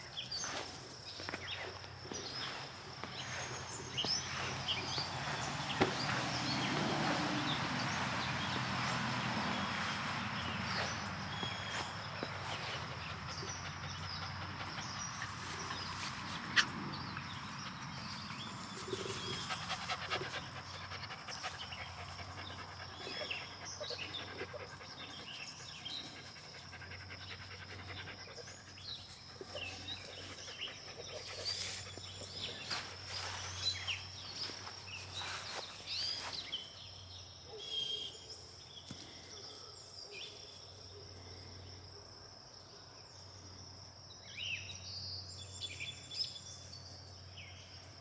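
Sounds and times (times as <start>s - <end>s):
dog panting: 3.1s - 33.9s.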